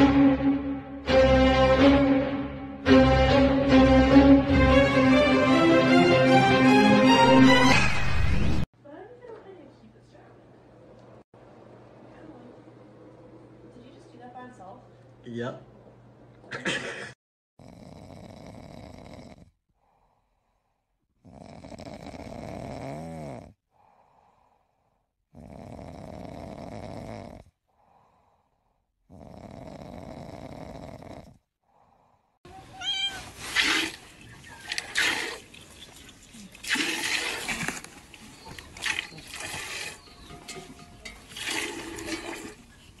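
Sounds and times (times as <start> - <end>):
man snoring: 17.6 - 19.6, 21.2 - 24.2, 25.3 - 28.3, 29.1 - 31.5
cat meowing loudly: 32.5 - 33.4.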